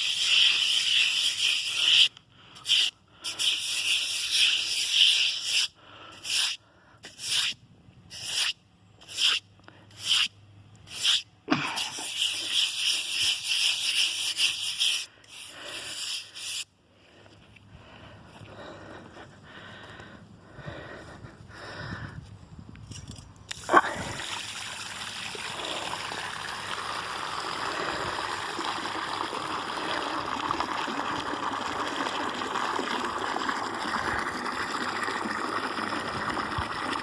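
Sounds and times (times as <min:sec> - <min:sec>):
brush scrubbing a basin: 0:00.0 - 0:02.1, 0:11.8 - 0:16.6.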